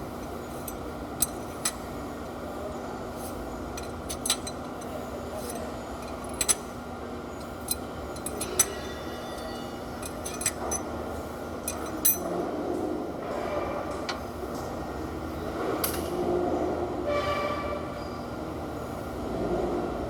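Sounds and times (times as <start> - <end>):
metallic clinks of hand tools: 0.0 - 1.9, 3.2 - 6.8, 7.4 - 11.0, 11.6 - 12.3
steady background hum: 0.0 - 20.0.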